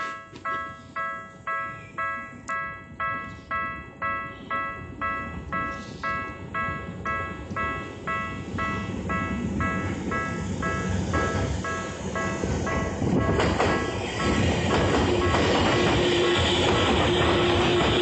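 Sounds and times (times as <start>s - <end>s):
low train rumble: 0.0s - 18.0s
railroad crossing bell clanging: 0.0s - 18.0s.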